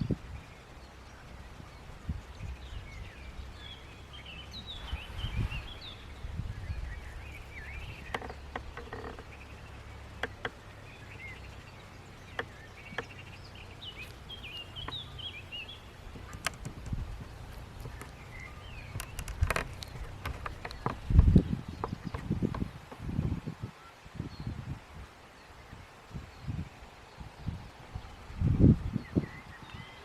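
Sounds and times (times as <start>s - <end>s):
steady low rumble: 0.0s - 23.4s
small birds chirping: 0.0s - 24.7s, 25.3s - 30.0s
sharp clicks: 16.1s - 23.0s.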